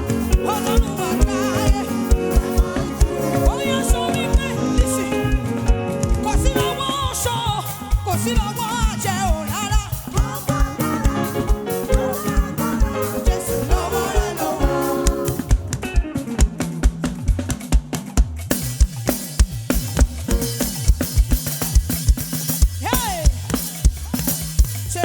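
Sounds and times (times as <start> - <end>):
drum beat: 0.0 - 6.8, 7.8 - 25.0
person singing: 0.0 - 15.7
gospel band music: 0.0 - 25.0.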